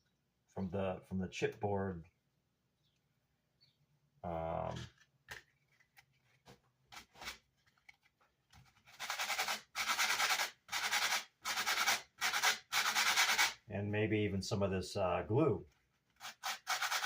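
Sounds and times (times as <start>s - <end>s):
sandpaper rubbing back and forth: 8.9s - 13.6s, 16.2s - 17.0s.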